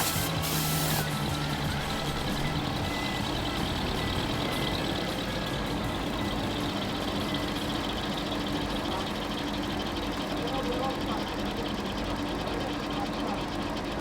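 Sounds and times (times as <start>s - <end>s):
wood planing machine running: 0.0s - 14.0s.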